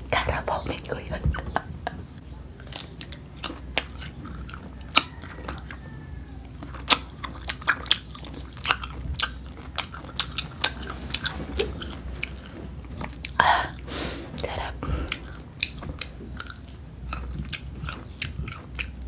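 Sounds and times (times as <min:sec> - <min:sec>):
crunchy bites of green mango: 0:02.6 - 0:13.4, 0:15.1 - 0:19.0.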